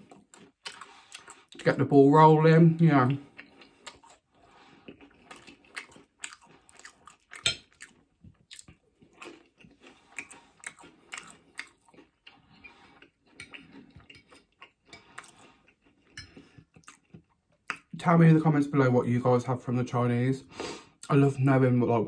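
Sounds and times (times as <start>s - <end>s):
chewing and crunching food: 0.0s - 1.9s, 2.6s - 18.0s.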